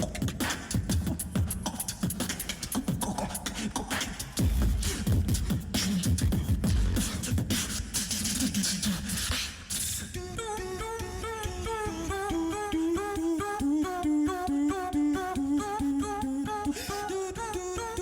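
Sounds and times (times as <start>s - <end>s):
beatboxing clicks and snare hits: 0.0s - 11.2s
beatboxing bass sliding down: 0.0s - 18.0s.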